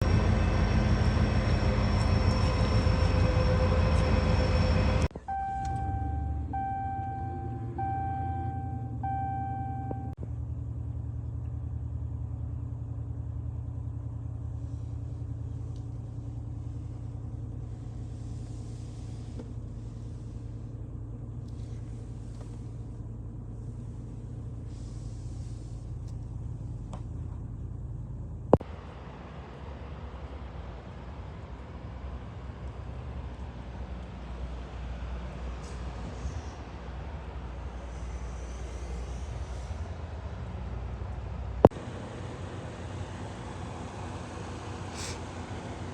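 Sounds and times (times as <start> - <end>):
loud steady tones: 0.0 - 10.2
truck engine idling: 0.0 - 45.9
dashboard warning chime: 2.1 - 10.2.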